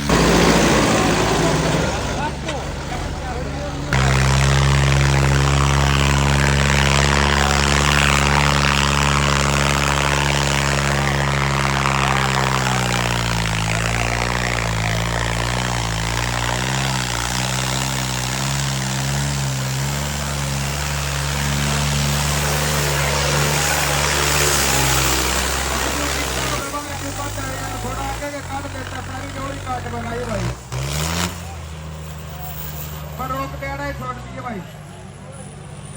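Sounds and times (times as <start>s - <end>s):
tractor diesel engine running hard: 0.0s - 35.9s.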